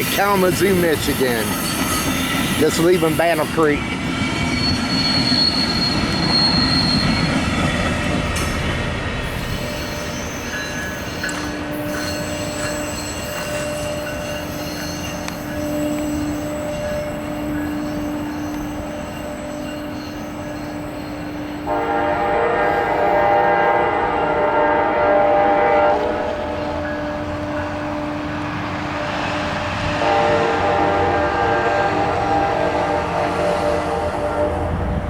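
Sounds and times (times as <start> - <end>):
high wheel squeal: 0.0 - 8.6, 9.2 - 21.8
train wheels rumbling on rails: 0.0 - 35.0
train horn: 21.6 - 28.2, 29.9 - 35.0.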